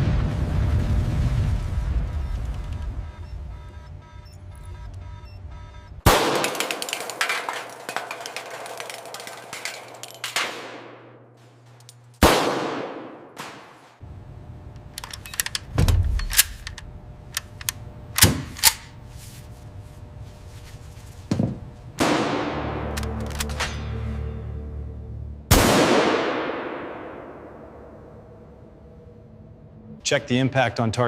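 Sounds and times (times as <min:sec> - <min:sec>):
rifle gunshots: 0:06.0 - 0:11.2, 0:12.2 - 0:13.8, 0:25.5 - 0:27.6.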